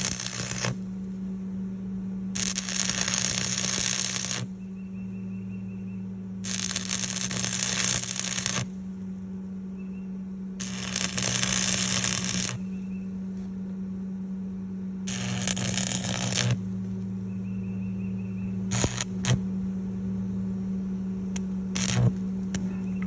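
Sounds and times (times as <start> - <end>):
welding arc crackling: 0.0 - 0.9, 2.4 - 4.5, 6.4 - 8.8, 10.6 - 12.7, 15.1 - 16.7, 18.7 - 19.4, 21.4 - 22.7
low hum: 0.0 - 23.0.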